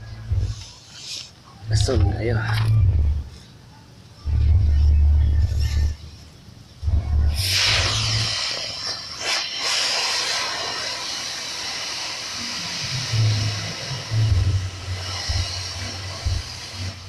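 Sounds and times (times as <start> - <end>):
low rumbles: 0.0 - 0.8, 1.6 - 3.4, 4.2 - 8.3, 12.8 - 17.0
steam hissing from boiler: 0.1 - 2.0, 7.2 - 17.0.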